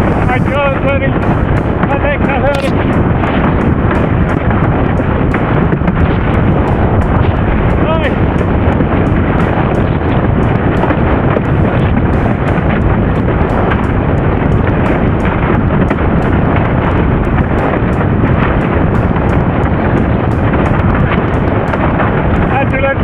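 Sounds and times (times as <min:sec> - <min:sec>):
wind buffeting microphone: 0:00.0 - 0:23.0
short crackling hits: 0:02.5 - 0:08.2.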